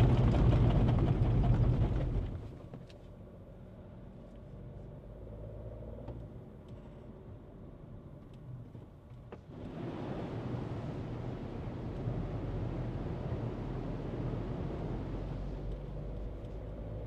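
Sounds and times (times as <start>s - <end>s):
car engine hum: 0.0s - 17.0s
tyre road noise: 0.0s - 17.0s.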